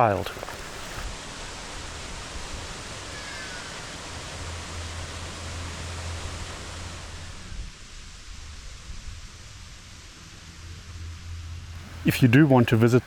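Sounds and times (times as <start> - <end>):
river water rushing: 0.0 - 3.0, 11.8 - 13.0.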